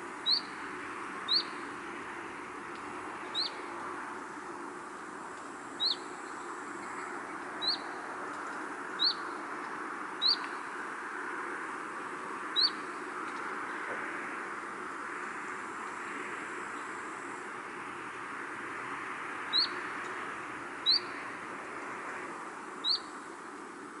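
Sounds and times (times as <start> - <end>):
outdoor ambience hiss: 0.0 - 24.0
songbird rising chirp: 0.2 - 0.6, 1.2 - 1.7, 3.2 - 3.7, 5.8 - 8.1, 8.9 - 9.4, 10.2 - 10.6, 19.5 - 20.2, 20.8 - 21.3, 22.8 - 23.2.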